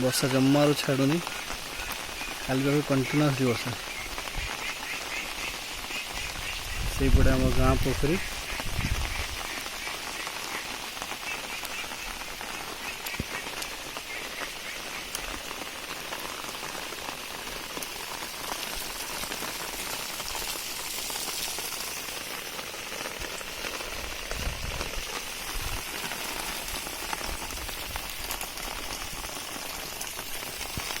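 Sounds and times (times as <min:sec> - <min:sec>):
heavy rain falling: 0:00.0 - 0:31.0.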